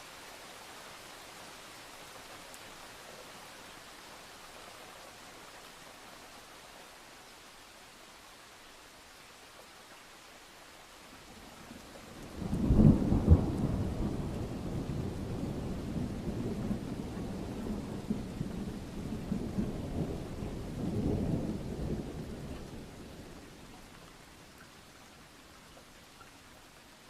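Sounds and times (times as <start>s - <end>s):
steady rain: 0.0s - 27.0s
rumble of thunder: 12.2s - 23.5s.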